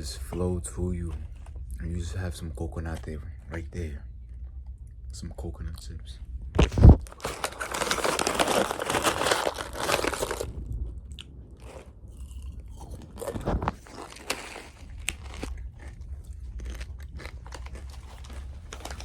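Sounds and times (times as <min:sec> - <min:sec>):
crunching coconut chips: 0:06.9 - 0:10.5, 0:11.6 - 0:19.0
chewing: 0:11.1 - 0:19.0.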